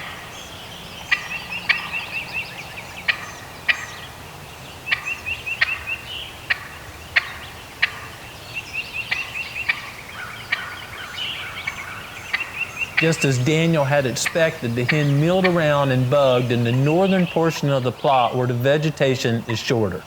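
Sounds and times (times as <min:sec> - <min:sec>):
turkey high chirping: 0:00.0 - 0:20.0
turkey clucks: 0:01.1 - 0:02.2, 0:03.1 - 0:04.2, 0:04.9 - 0:20.0.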